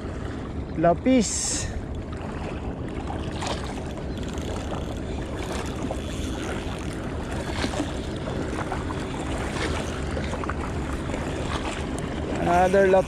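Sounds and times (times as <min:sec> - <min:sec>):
low hum: 0:00.0 - 0:13.0
water noise: 0:00.0 - 0:13.0
wind: 0:00.0 - 0:13.0.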